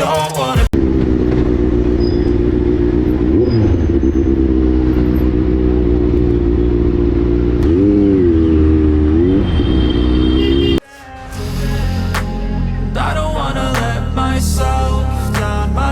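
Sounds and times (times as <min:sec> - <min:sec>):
motorcycle engine running: 0:00.8 - 0:10.8.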